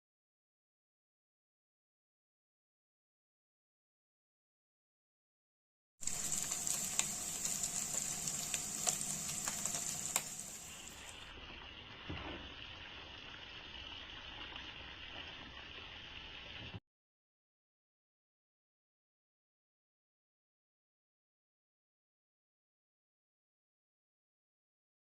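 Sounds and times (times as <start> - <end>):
food sizzling in hot oil: 6.0 - 16.8
oil crackling and popping: 6.0 - 16.8.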